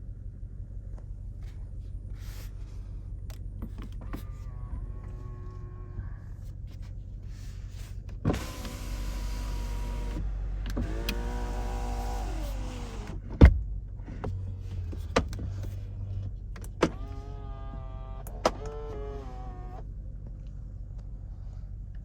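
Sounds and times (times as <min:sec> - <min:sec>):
electric motors whining: 0:08.3 - 0:13.2, 0:16.8 - 0:19.8.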